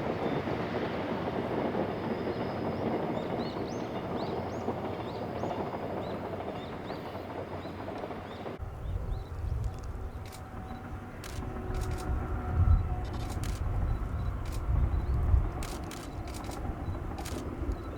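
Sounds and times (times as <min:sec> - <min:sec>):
train rumbling on rails: 0:00.0 - 0:17.9.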